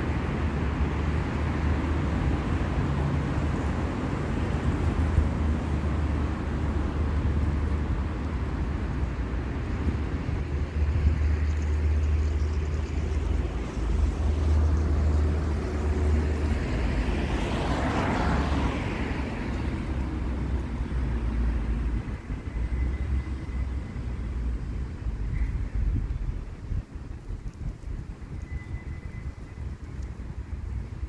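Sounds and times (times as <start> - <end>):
steady low traffic rumble: 0.0 - 31.0
vehicle passing by: 10.3 - 22.1.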